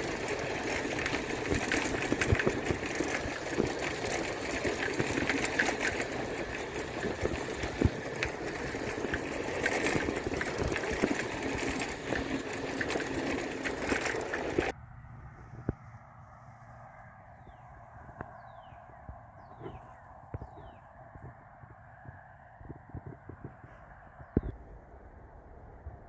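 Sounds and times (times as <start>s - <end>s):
bicycle rattling and clicking: 0.0s - 14.8s.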